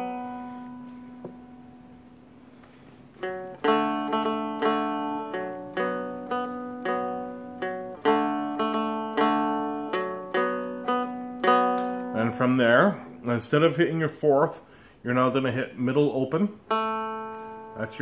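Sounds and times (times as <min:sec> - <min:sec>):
dulcimer picked and strummed: 0:00.0 - 0:14.0, 0:15.8 - 0:18.0.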